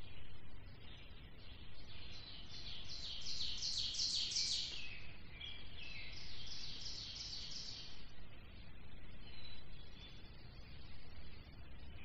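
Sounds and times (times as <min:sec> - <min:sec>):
low steady background hiss: 0:00.0 - 0:12.0
songbird singing high notes: 0:02.2 - 0:07.9.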